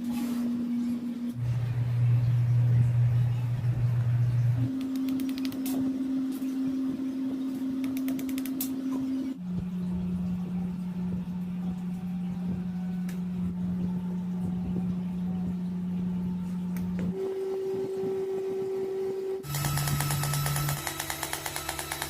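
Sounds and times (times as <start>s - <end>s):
small motor humming: 7.7s - 22.0s.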